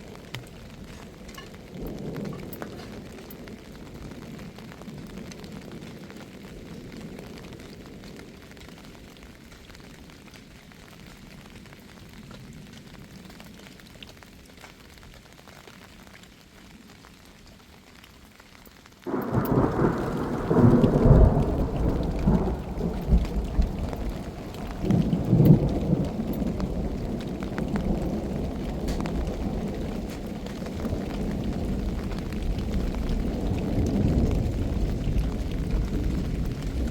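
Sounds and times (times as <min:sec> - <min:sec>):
thunder crack and rumble: 0:00.0 - 0:09.1, 0:19.0 - 0:36.9
steady rain: 0:00.0 - 0:36.9.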